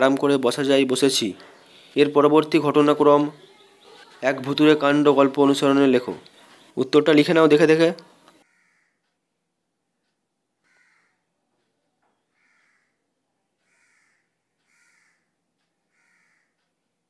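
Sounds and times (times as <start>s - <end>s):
faint short bird calls: 10.7s - 11.2s, 12.2s - 13.0s.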